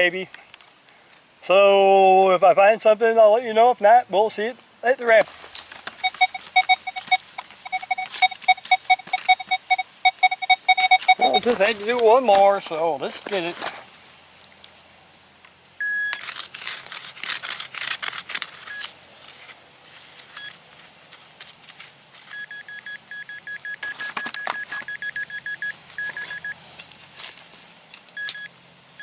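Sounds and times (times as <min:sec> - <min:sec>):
metal detector beeping: 0:06.0 - 0:12.0, 0:15.8 - 0:16.2, 0:18.6 - 0:18.9, 0:20.3 - 0:20.6, 0:22.2 - 0:26.6, 0:28.1 - 0:29.0
digging tool scraping soil: 0:10.8 - 0:14.1, 0:16.0 - 0:23.0.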